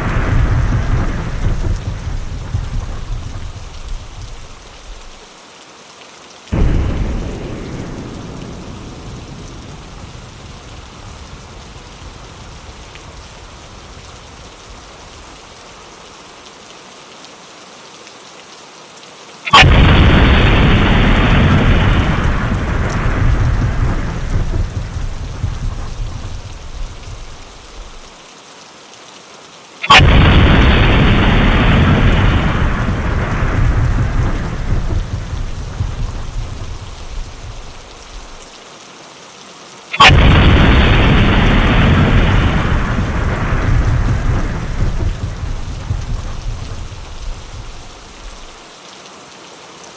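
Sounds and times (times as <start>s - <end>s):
thunder cracks and rumbles: 0.0s - 5.2s, 6.5s - 14.8s, 19.5s - 28.1s, 29.9s - 38.4s, 40.0s - 48.6s
steady rain: 0.0s - 49.9s.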